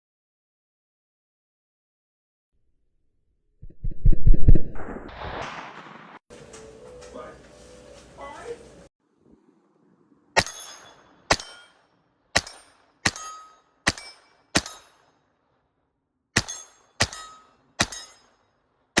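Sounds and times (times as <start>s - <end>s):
gunshot ringing: 10.4s - 11.8s, 12.4s - 15.0s, 16.4s - 18.3s
pistol shots: 10.4s - 15.2s, 16.4s - 18.4s.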